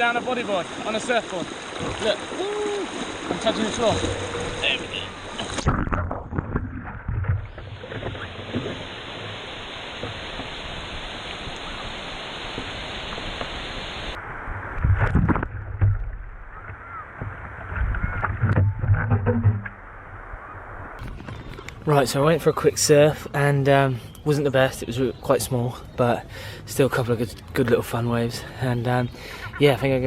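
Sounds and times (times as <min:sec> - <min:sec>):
sea water rushing: 0:00.0 - 0:15.4, 0:20.0 - 0:24.3
heavy knocks and splashes: 0:00.7 - 0:09.3.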